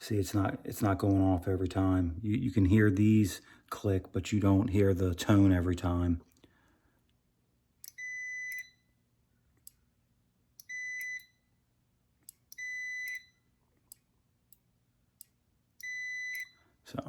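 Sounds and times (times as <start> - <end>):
multimeter continuity beeps: 7.8 - 9.0, 10.6 - 11.5, 12.3 - 13.5, 15.8 - 16.7.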